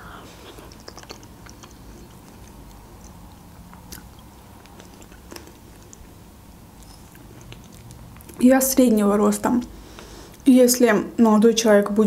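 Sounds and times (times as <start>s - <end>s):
soft mouth clicks: 0.0s - 6.1s
person chewing food: 0.0s - 8.4s.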